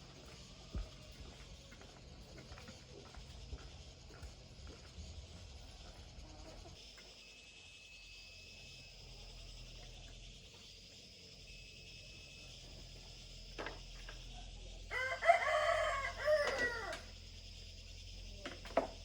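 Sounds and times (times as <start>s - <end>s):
rooster crowing: 14.9s - 17.2s.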